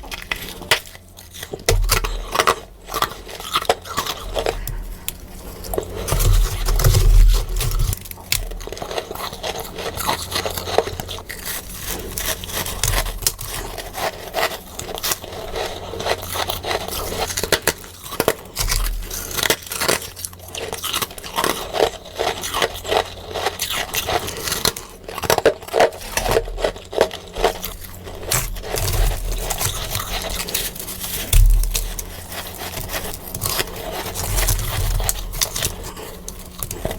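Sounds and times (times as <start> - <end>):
crunching and chewing frost: 0.0 - 36.9.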